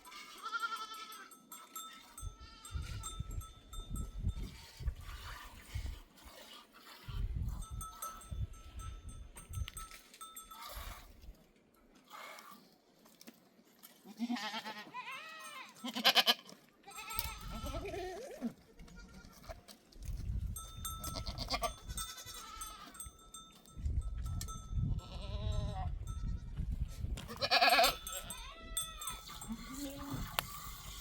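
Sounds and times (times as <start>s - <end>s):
goats bleating: 0.0s - 2.7s, 14.0s - 19.7s, 27.3s - 31.0s.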